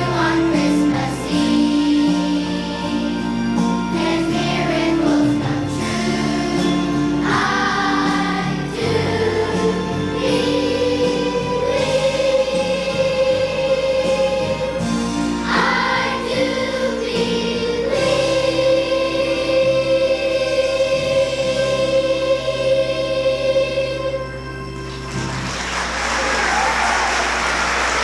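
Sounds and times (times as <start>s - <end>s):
instrumental accompaniment: 0.0s - 26.7s.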